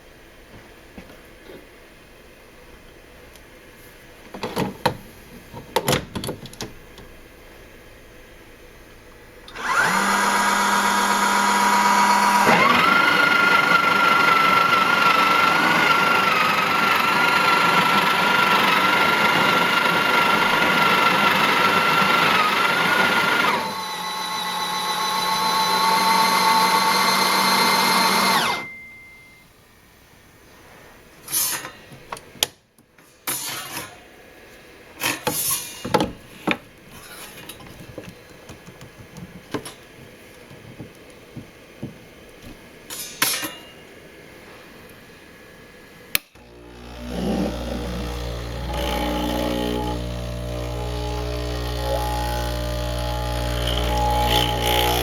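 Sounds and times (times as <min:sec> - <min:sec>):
coffee grinder whining: 0:09.5 - 0:28.7, 0:46.4 - 0:55.0.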